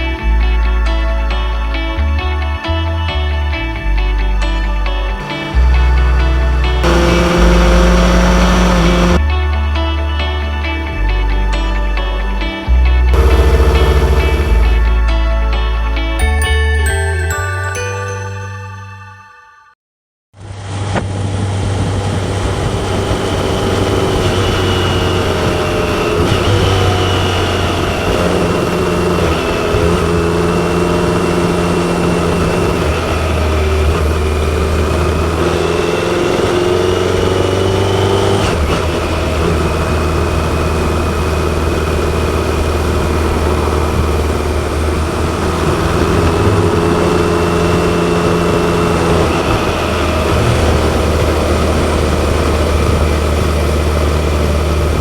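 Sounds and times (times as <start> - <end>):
motorcycle engine running: 5.6 - 9.2, 13.1 - 15.0, 21.1 - 55.0.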